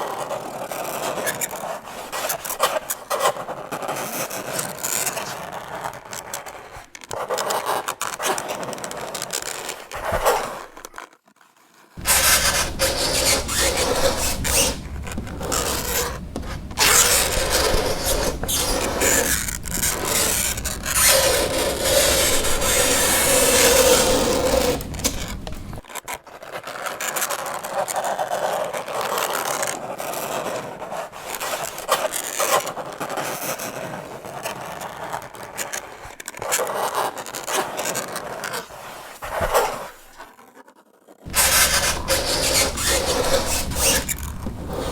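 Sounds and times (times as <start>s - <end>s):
fingernails scraping chalkboard: 12.0s - 25.8s, 41.3s - 44.9s.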